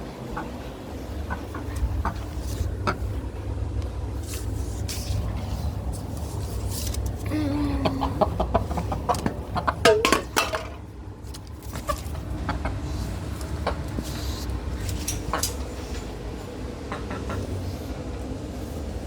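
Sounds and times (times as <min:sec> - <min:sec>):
chicken clucking: 0:00.0 - 0:03.3, 0:07.8 - 0:10.6, 0:11.7 - 0:14.5, 0:16.8 - 0:17.8.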